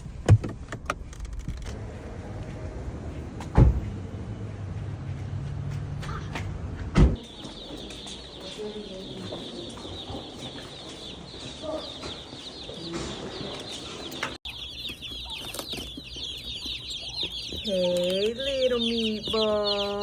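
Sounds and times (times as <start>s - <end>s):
low engine hum: 0.0s - 7.2s
loud thump: 3.5s - 3.9s, 6.9s - 7.2s
chicks peeping: 7.2s - 20.0s.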